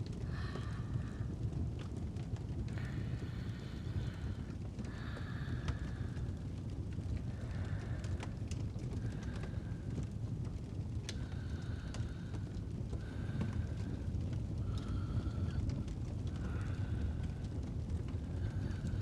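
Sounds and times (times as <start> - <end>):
fire crackling: 0.0 - 19.0
fire rumbling: 0.0 - 19.0
sleeping breaths: 0.1 - 6.6, 11.1 - 19.0.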